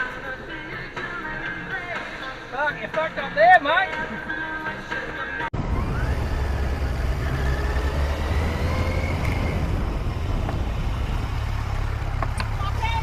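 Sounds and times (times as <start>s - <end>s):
vehicle engine and tyres rumbling: 4.0s - 13.0s.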